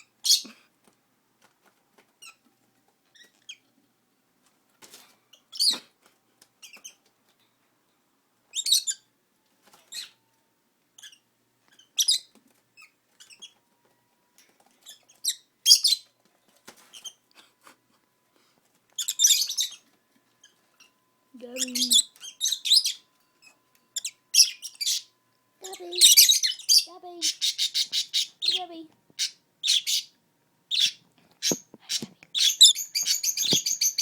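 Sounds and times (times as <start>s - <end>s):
lovebirds chirping: 19.0s - 34.0s
lovebirds chattering: 21.5s - 23.0s, 24.0s - 34.0s.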